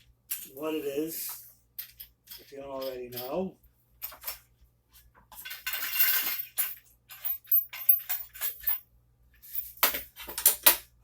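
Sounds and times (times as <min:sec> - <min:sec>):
metal hardware clicks and clinks: 0:00.3 - 0:00.6, 0:01.8 - 0:04.4, 0:05.3 - 0:08.8, 0:09.5 - 0:10.8.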